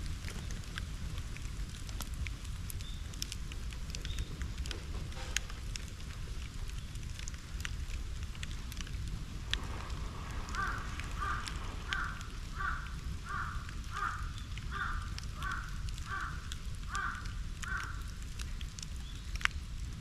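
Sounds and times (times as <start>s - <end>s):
bonfire crackling and popping: 0.0s - 20.0s
crow cawing: 10.5s - 18.2s.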